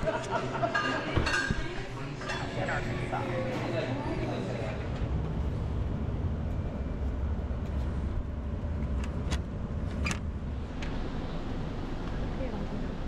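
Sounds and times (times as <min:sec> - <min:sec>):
vehicle engine low rumble: 0:04.6 - 0:13.0.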